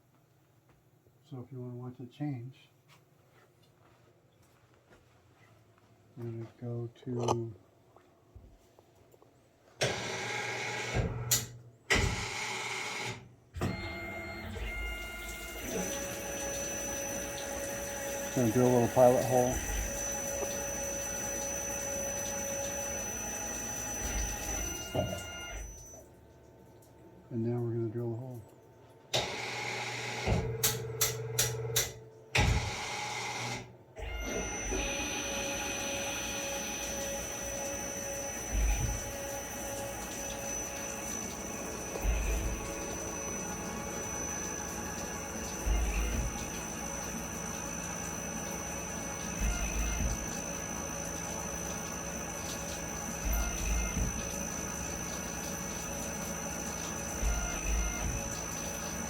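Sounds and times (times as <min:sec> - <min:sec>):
lathe motors running: 0:09.8 - 0:26.0, 0:29.2 - 0:59.0
thin machine whine: 0:09.8 - 0:26.1, 0:29.1 - 0:59.0.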